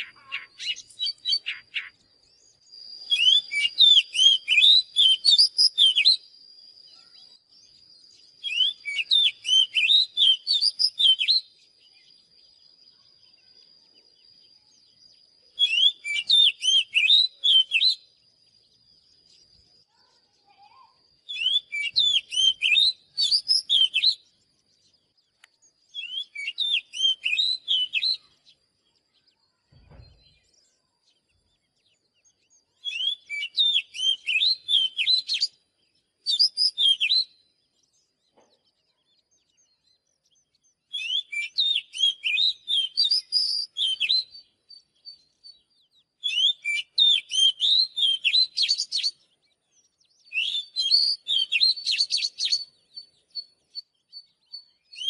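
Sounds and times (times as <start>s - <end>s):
bird singing whistled phrases: 0.0s - 12.1s, 13.2s - 18.2s, 19.8s - 24.4s, 25.8s - 28.6s, 29.4s - 37.8s, 38.9s - 55.0s.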